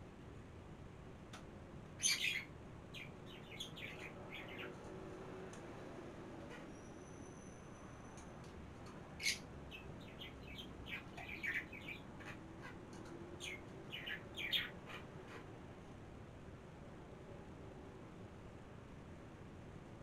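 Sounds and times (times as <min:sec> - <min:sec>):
faint room hum: 0:00.0 - 0:20.0
small birds chirping: 0:02.0 - 0:05.0, 0:08.9 - 0:15.6.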